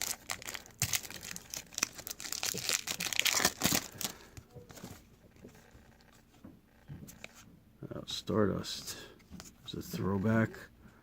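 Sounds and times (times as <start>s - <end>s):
wrapper crinkling and tearing: 0.0s - 4.4s.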